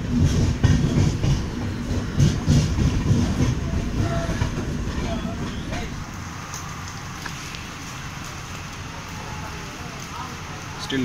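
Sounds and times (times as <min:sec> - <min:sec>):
train wheels clattering over rails: 0:00.0 - 0:05.9.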